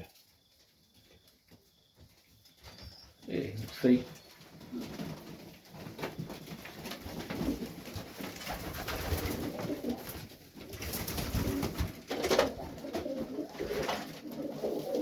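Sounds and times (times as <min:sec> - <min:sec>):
pigeons cooing: 0:06.3 - 0:15.0.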